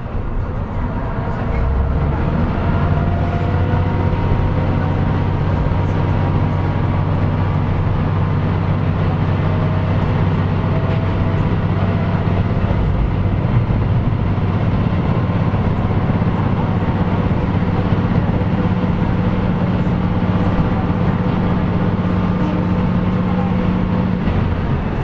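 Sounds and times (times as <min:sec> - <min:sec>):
diesel engine drone: 0:00.0 - 0:25.0.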